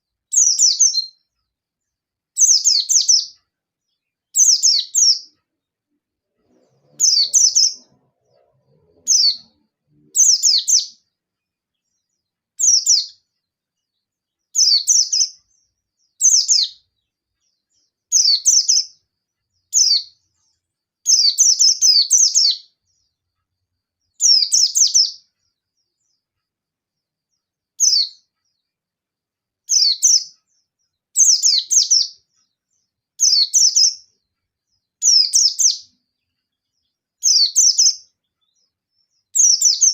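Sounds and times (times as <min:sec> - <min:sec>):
bird singing rapid falling phrases: 0:00.0 - 0:39.9.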